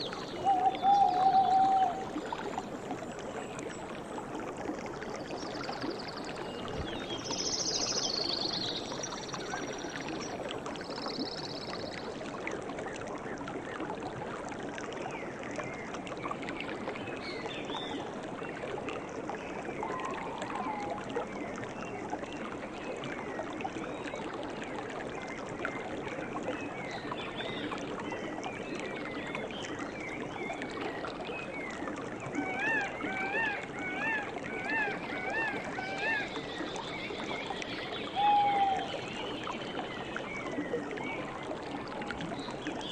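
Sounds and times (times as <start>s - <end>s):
running water: 0.0s - 42.9s.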